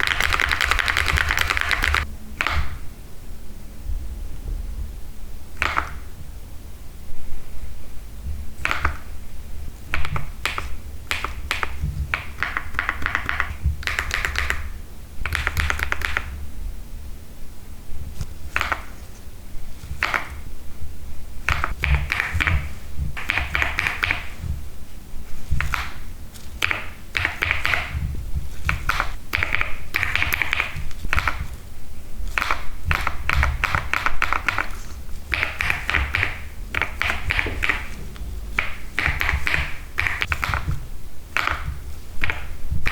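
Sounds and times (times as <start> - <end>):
mechanical keyboard typing: 0.0 - 2.8, 9.9 - 16.3, 21.5 - 24.5, 26.6 - 31.6, 32.2 - 42.9.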